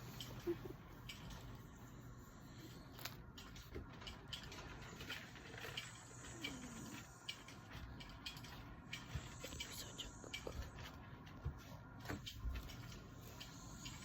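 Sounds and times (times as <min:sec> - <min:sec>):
dog whining softly: 0:04.9 - 0:07.3.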